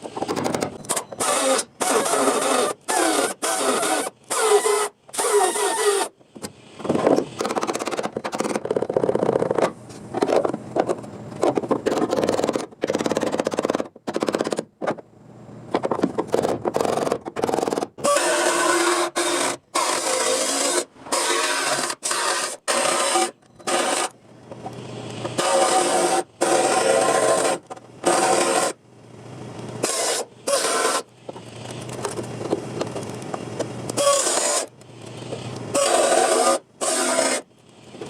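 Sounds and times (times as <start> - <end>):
rasping on sheet metal: 25.4 - 28.8, 34.0 - 34.7, 35.8 - 37.5.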